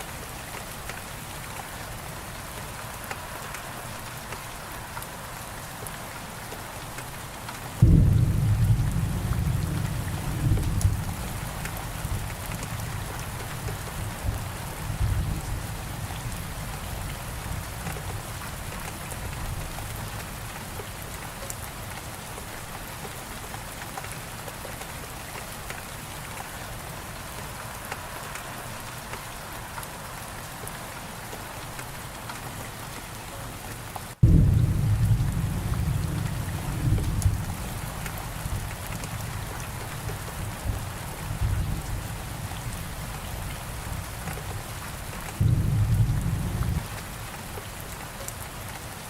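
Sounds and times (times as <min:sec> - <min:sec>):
heavy rain falling: 0:00.0 - 0:49.0
thunder rumbling: 0:07.8 - 0:13.0, 0:34.2 - 0:39.6, 0:45.4 - 0:47.0.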